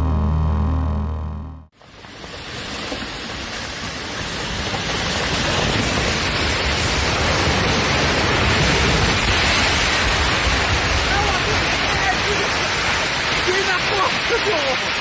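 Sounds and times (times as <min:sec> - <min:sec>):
music: 0:00.0 - 0:01.7
steady rushing noise: 0:01.8 - 0:15.0.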